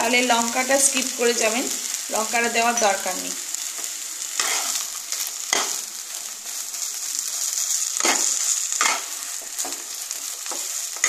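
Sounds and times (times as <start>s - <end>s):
food sizzling in oil: 0.0s - 11.0s
spatula scraping pan: 3.7s - 5.9s, 7.4s - 11.0s.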